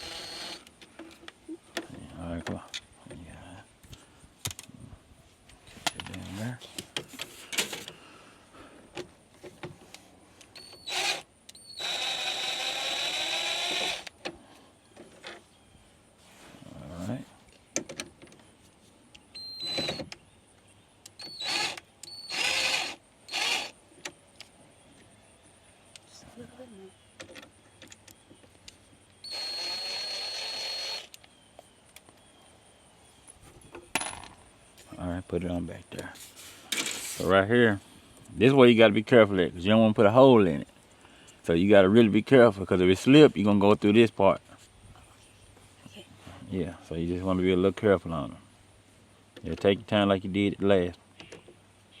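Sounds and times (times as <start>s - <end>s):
cordless drill running: 0.0s - 0.7s, 10.6s - 14.1s, 19.4s - 20.0s, 21.2s - 23.7s, 29.2s - 31.2s.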